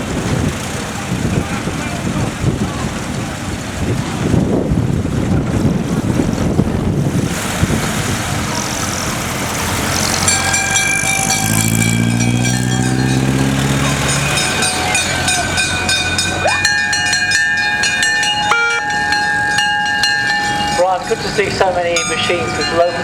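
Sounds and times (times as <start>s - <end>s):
fire engines running: 0.0s - 23.0s
fire bell ringing: 10.1s - 23.0s
low horn-like tone: 18.5s - 19.0s.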